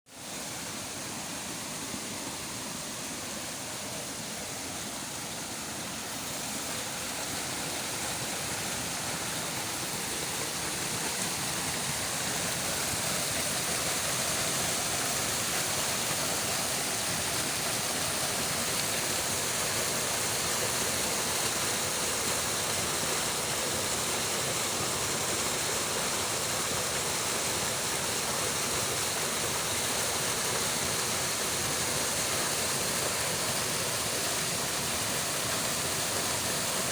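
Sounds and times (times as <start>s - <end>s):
waterfall: 0.1s - 36.9s.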